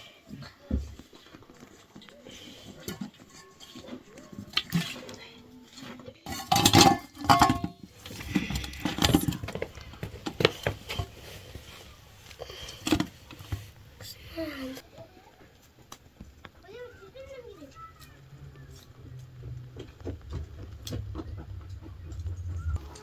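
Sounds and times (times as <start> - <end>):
metal pots clinking together: 6.2 - 11.8.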